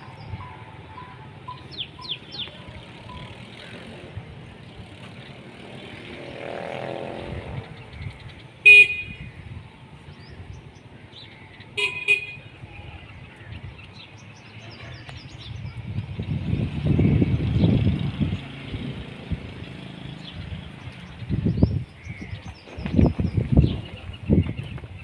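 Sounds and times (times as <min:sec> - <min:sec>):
vehicle horn toots: 0:08.6 - 0:09.4, 0:11.8 - 0:12.5.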